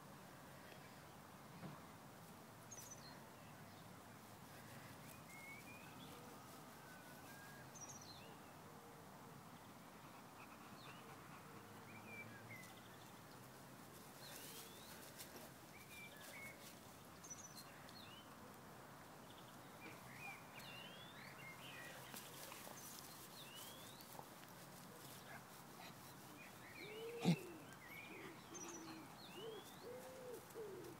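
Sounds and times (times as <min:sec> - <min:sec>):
small birds chirping: 0:19.2 - 0:31.0.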